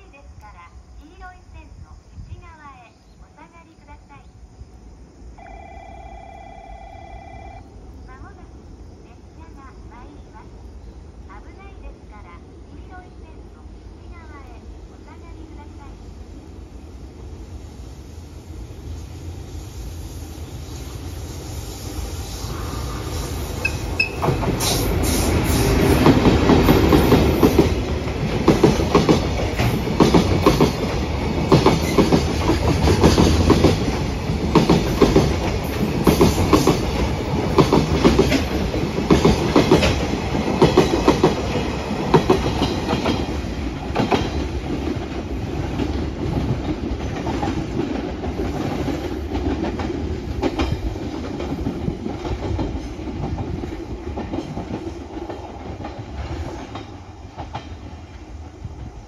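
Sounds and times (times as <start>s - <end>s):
train rumble: 7.7s - 59.0s
train wheels clattering over rail joints: 23.6s - 58.1s.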